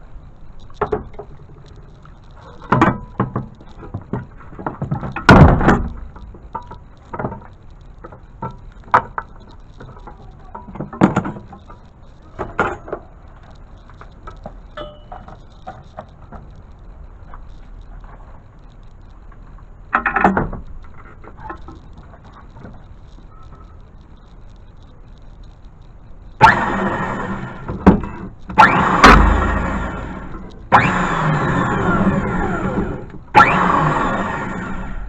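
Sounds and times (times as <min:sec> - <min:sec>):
knocks and clatters: 0:00.5 - 0:24.3
loud thumps: 0:02.7 - 0:07.5, 0:26.4 - 0:34.6.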